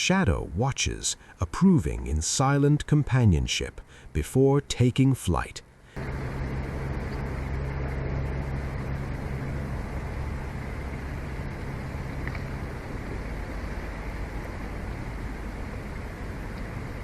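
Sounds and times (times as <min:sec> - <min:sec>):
low even hum: 0:00.0 - 0:17.0
steady rumbling: 0:00.0 - 0:17.0.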